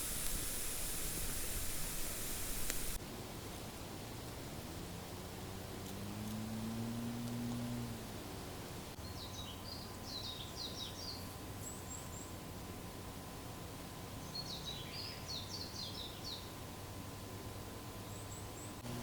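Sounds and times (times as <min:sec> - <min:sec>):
faint background noise: 0:00.0 - 0:19.0
songbird singing: 0:08.9 - 0:12.4, 0:14.1 - 0:16.6, 0:17.9 - 0:19.0.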